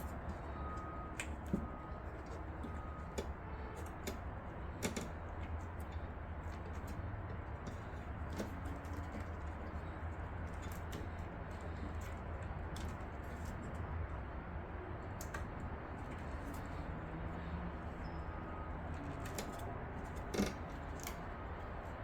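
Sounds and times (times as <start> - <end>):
clicks of handling computer parts: 0.0 - 13.8, 18.6 - 21.6.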